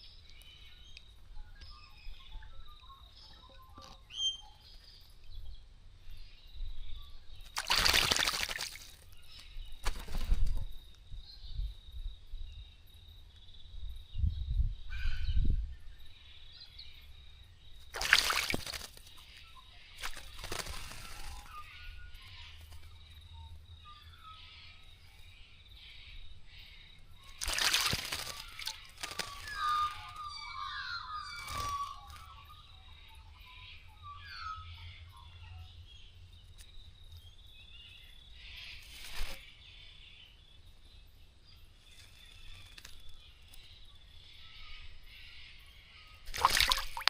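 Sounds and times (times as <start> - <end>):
short chirping bird calls: 0.0 - 5.4, 27.2 - 35.7
birds flapping and splashing: 7.4 - 9.1, 9.8 - 10.6, 17.8 - 19.3, 20.0 - 21.6, 27.2 - 30.2, 46.3 - 47.0.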